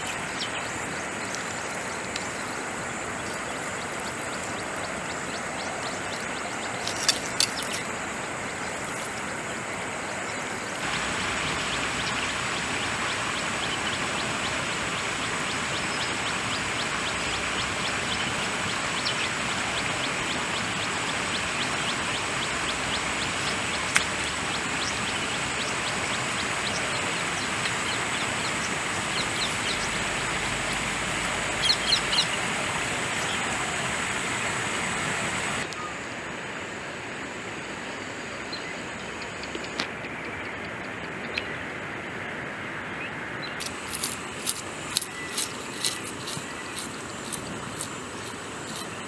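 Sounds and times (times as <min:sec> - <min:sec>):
stream water rushing: 0:00.0 - 0:35.7, 0:43.6 - 0:49.0.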